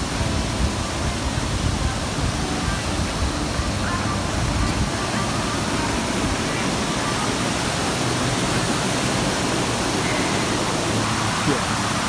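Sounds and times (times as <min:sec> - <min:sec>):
fast-flowing river water rushing: 0:00.0 - 0:12.0.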